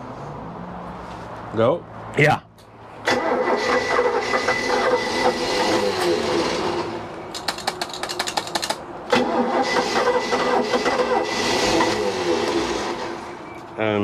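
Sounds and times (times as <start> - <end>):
starter cranking: 7.4 - 12.6.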